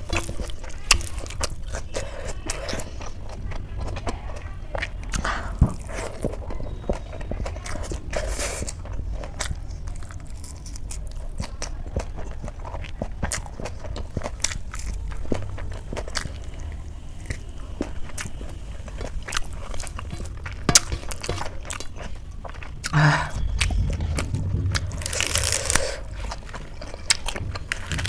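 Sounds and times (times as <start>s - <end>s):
chewing and crunching food: 0.0s - 28.0s
steady low hum: 13.7s - 28.0s.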